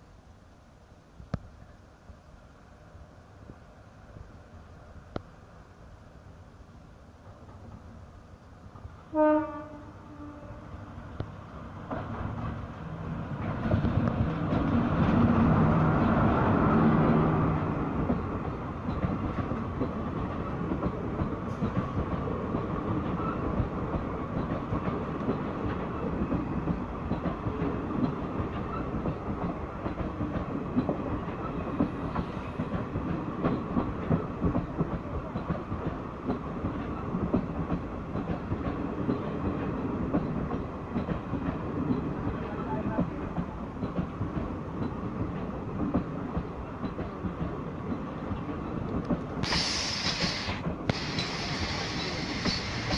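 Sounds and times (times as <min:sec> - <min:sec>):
electric locomotive hum: 0:00.1 - 0:52.9
train wheels clickety-clack: 0:11.1 - 0:52.9.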